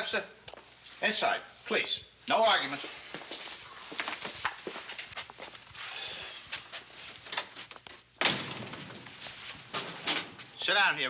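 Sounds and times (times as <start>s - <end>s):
light footsteps: 2.7s - 8.0s
door slamming: 8.2s - 9.1s.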